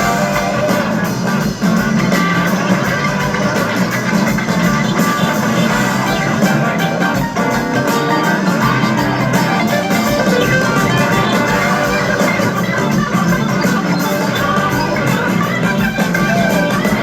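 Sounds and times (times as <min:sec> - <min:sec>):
bass guitar: 0:00.0 - 0:17.0
drums: 0:00.0 - 0:17.0
electric guitar: 0:00.0 - 0:17.0.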